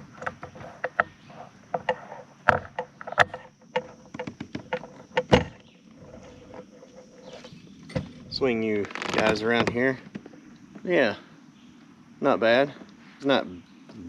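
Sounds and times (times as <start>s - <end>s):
clicks and knocks in a kayak: 0.0s - 8.2s, 8.8s - 10.8s
faint steady hum: 0.0s - 14.0s.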